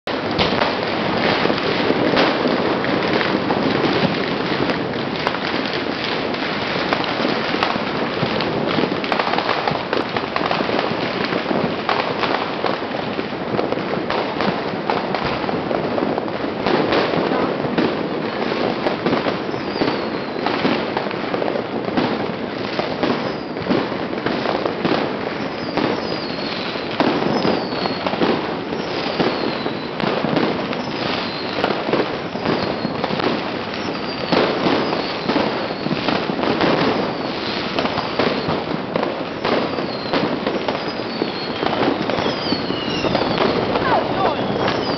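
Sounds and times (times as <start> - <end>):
firecrackers crackling: 0.0 - 44.9
falling whistles: 19.5 - 20.4, 27.3 - 28.1, 28.8 - 29.9, 30.9 - 31.6, 39.7 - 40.2, 40.8 - 44.9.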